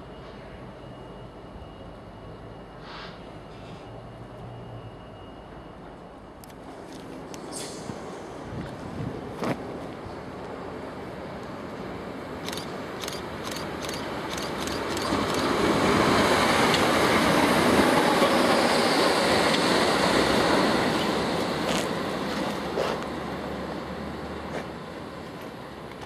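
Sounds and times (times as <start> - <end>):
train wheels rumbling on rails: 5.4 - 26.0.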